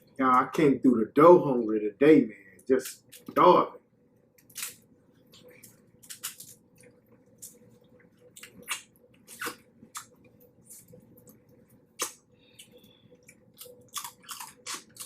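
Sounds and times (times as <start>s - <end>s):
faint steady hum: 0.0s - 15.0s
wet chewing and squishing: 4.4s - 15.0s.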